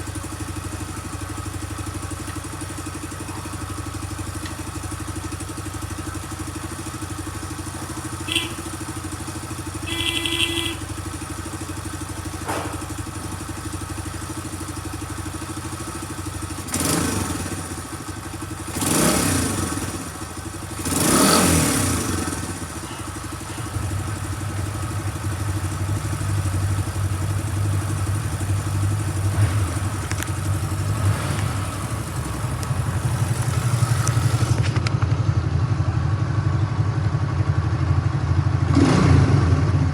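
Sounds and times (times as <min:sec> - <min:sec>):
motorcycle engine idling and revving: 0:00.0 - 0:39.9.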